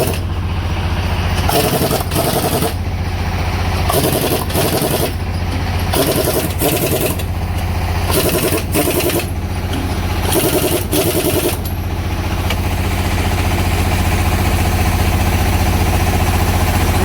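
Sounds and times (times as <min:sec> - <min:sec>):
engine running: 0:00.0 - 0:17.0
impact wrench rattling: 0:03.9 - 0:12.0.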